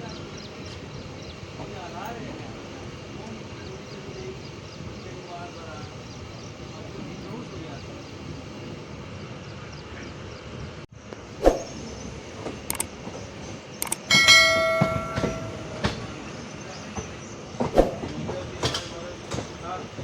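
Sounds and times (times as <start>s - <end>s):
train rumbling: 10.4s - 20.0s
sharp knocks: 13.8s - 16.4s
loud metallic clang: 13.8s - 16.5s.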